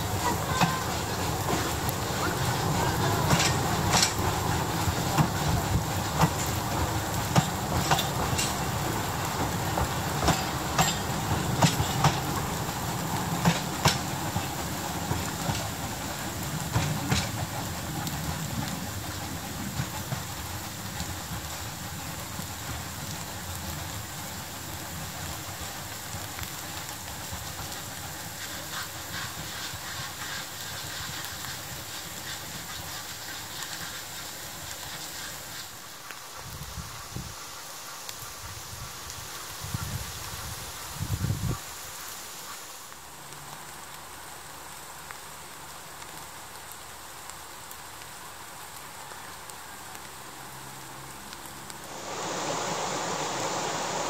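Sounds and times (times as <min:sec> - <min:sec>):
wheels clicking over rail joints: 0:00.0 - 0:36.5
train rumble: 0:00.0 - 0:41.6, 0:51.6 - 0:54.0.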